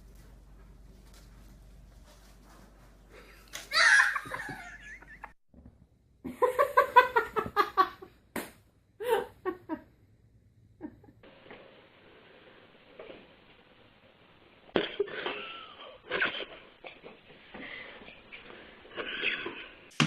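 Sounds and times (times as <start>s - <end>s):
high wavering cry: 3.7s - 4.4s
person laughing: 3.7s - 5.4s, 9.0s - 9.8s.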